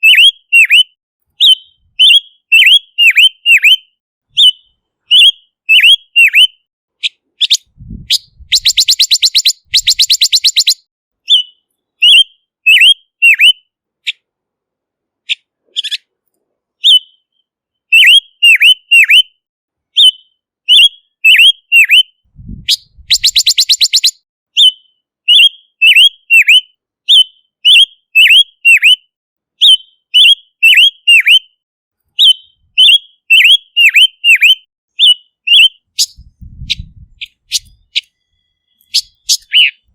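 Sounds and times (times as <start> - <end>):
bird whistling downslurred notes: 0.0 - 6.6, 7.4 - 13.6, 16.8 - 19.4, 20.0 - 31.5, 32.2 - 39.8
bird rattling trill: 7.5 - 10.8, 23.0 - 24.1, 38.8 - 39.8.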